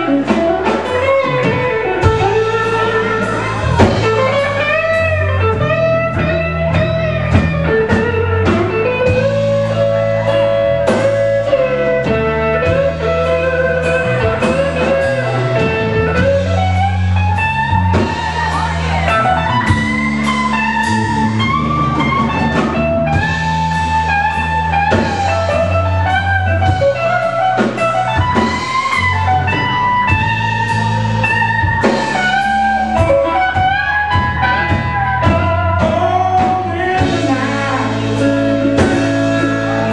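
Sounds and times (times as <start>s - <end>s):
bass guitar: 0.0s - 39.9s
drums: 0.0s - 39.9s
electric guitar solo: 0.0s - 39.9s.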